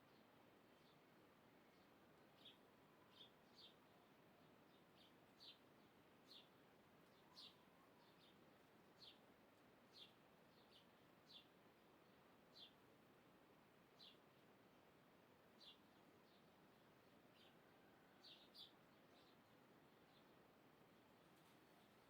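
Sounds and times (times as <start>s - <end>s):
faint bird chirps: 0.0s - 8.4s, 15.6s - 20.4s
low steady hiss: 0.0s - 22.0s.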